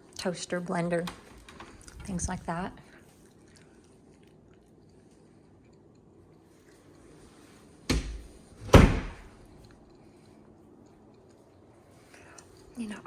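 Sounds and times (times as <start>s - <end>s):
door shutting thuds: 7.9s - 9.3s.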